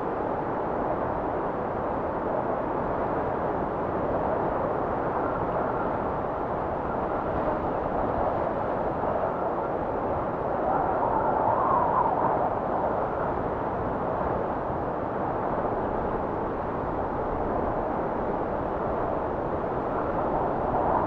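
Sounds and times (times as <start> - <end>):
blizzard wind rushing: 0.0 - 21.0
faint wind whistle: 9.1 - 13.5.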